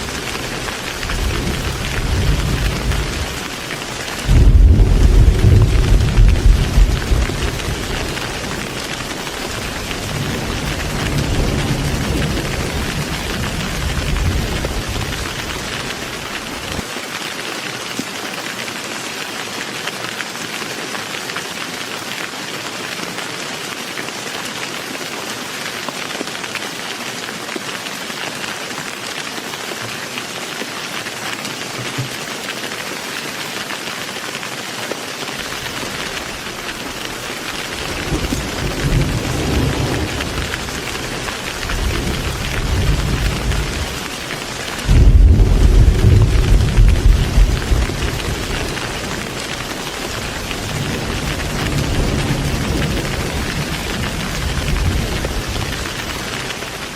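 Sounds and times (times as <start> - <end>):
rolling thunder: 0.0 - 3.5, 4.1 - 16.8, 35.5 - 44.1, 44.7 - 56.5
heavy rain: 0.0 - 56.9.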